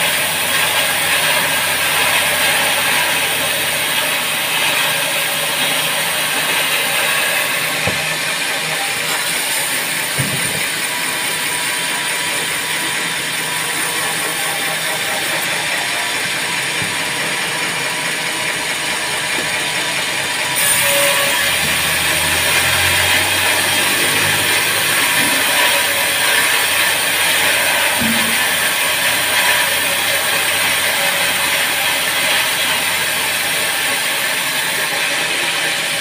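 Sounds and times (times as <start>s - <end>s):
band sawmill running: 0.0s - 36.0s.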